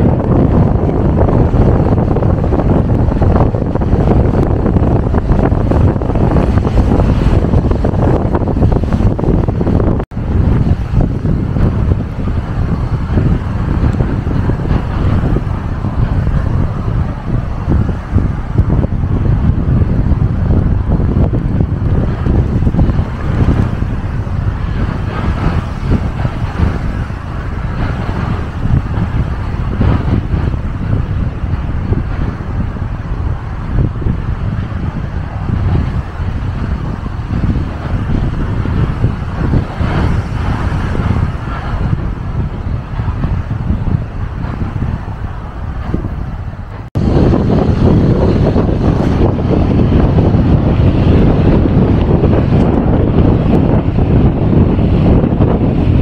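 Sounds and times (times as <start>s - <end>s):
gusty wind buffeting microphone: 0.0s - 56.0s.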